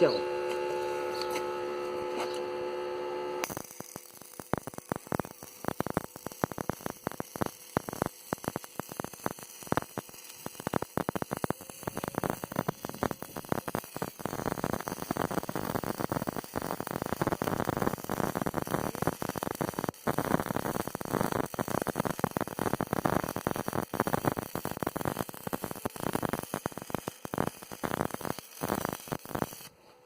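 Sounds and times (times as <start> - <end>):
stick welding crackling: 3.3 - 29.7.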